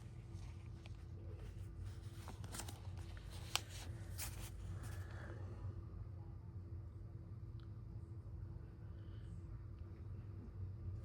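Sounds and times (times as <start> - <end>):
faint steady hum: 0.0 - 11.0
paper rustling and sliding: 0.3 - 5.0.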